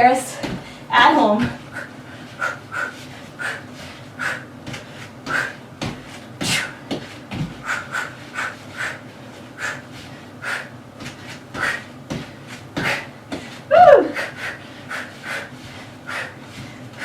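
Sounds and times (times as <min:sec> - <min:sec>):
dull thumps: 0:00.3 - 0:01.6, 0:04.6 - 0:07.8.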